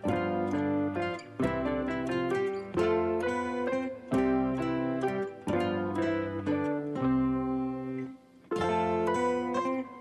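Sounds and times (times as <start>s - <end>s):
plucked-string instrumental music: 0.0s - 10.0s.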